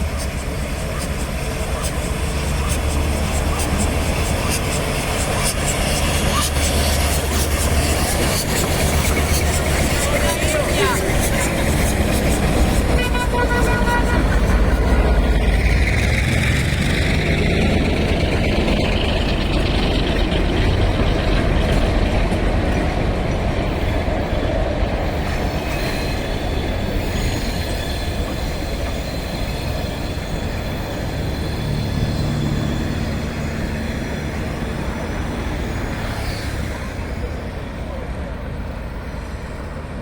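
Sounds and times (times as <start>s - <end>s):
train rolling on rails: 0.0s - 40.0s
faint high wheel squeal: 25.3s - 35.1s.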